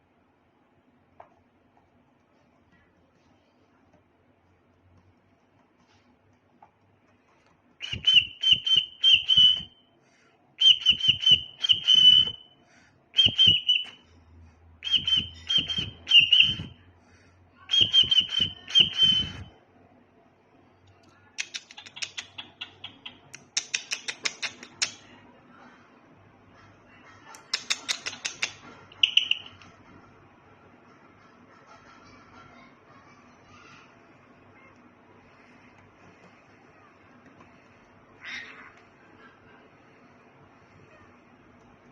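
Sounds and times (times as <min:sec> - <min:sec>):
cockatiel chirping: 0:21.6 - 0:24.5, 0:28.0 - 0:29.6.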